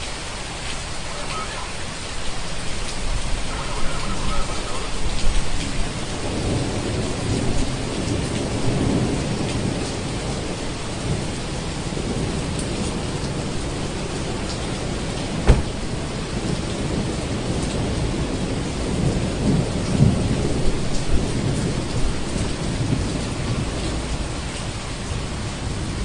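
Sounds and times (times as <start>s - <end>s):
steady rain: 0.0s - 26.0s
thunder rumbling: 5.0s - 24.5s
sharp thunder crack: 15.3s - 17.1s.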